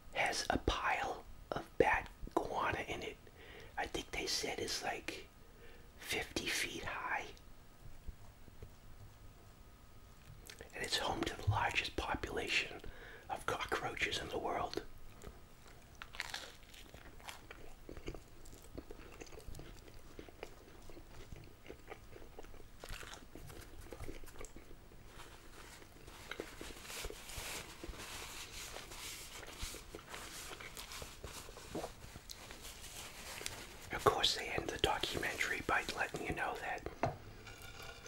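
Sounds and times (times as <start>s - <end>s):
crunching toast: 15.7s - 27.7s
paper napkin crinkling: 25.0s - 36.6s.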